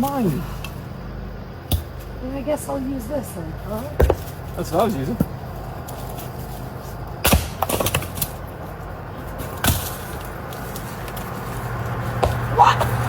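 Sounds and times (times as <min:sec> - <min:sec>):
axe striking wood: 0:01.7 - 0:02.0, 0:07.2 - 0:08.3.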